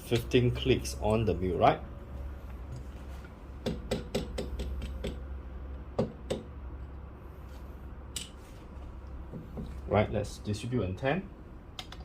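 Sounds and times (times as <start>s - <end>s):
light clicks and taps of tools: 2.4s - 7.0s, 11.8s - 12.0s.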